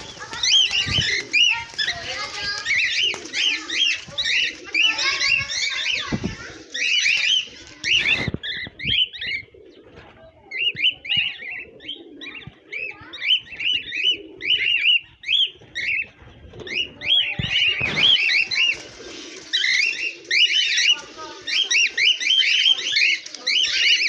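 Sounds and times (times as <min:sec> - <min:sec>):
small birds chirping: 0:00.0 - 0:24.0
low cooing: 0:07.9 - 0:15.0.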